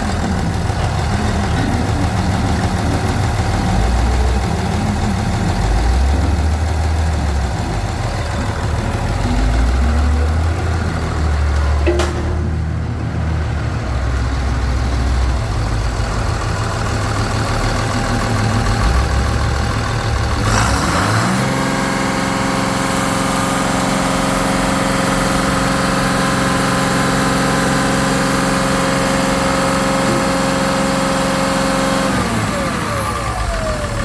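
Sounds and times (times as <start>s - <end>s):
diesel engine idling and revving: 0.0s - 34.0s.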